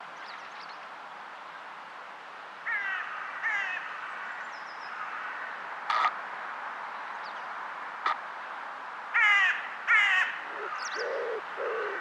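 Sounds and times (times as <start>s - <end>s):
harsh bird calls: 10.4s - 12.0s.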